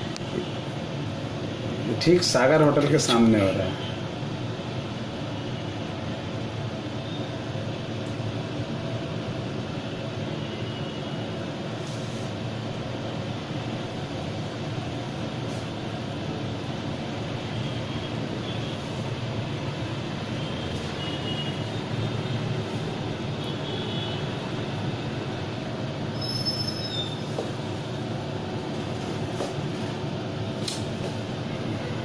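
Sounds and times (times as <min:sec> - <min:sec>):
rumble of road traffic: 0:00.0 - 0:32.0
short high squeal: 0:26.1 - 0:27.3
faint high squeaks: 0:26.2 - 0:27.2.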